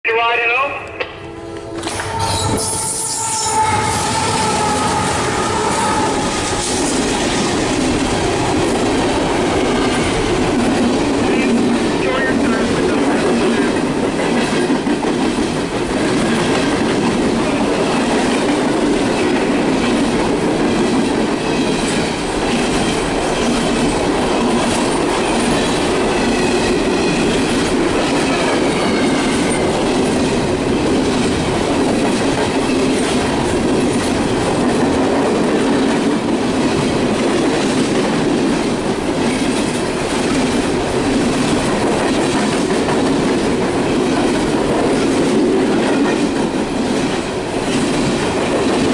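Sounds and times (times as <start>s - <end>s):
steel wheels rumbling on rails: 1.0s - 48.9s
faint high squeals: 1.9s - 5.1s.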